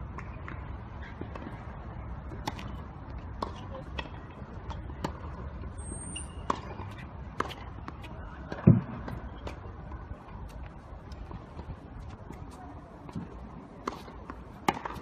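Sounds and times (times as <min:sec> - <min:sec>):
tennis ball struck: 0:06.2 - 0:08.9, 0:13.8 - 0:15.0.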